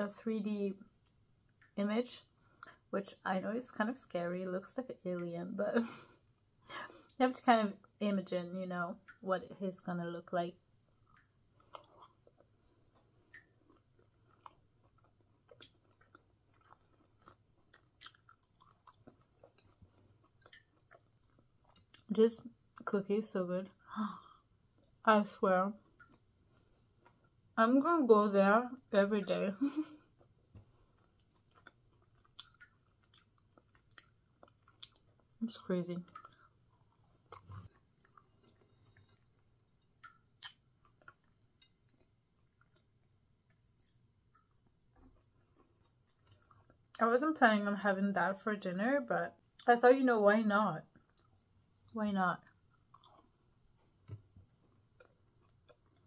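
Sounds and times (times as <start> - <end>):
person chewing a cookie: 10.7 - 22.8, 23.7 - 25.0, 25.8 - 27.6, 30.0 - 35.4, 36.0 - 47.0, 50.9 - 56.0.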